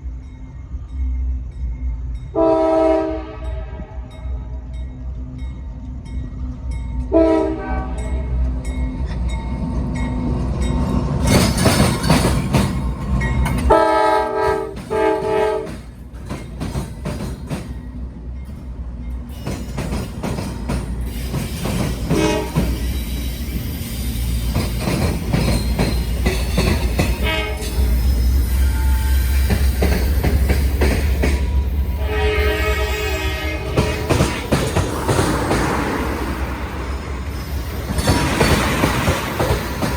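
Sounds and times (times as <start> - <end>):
locomotive engine rumbling: 0.0 - 39.9
multi-tone air horn: 2.4 - 4.1, 13.7 - 15.8, 22.1 - 22.8, 27.2 - 27.8, 32.0 - 34.2
rail clatter: 8.0 - 39.9.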